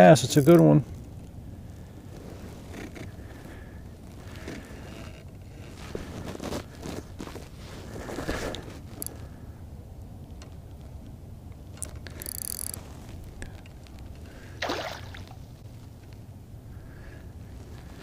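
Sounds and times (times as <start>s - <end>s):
low rumble of water: 12.8s - 18.0s
fish splashing in water: 14.5s - 15.5s.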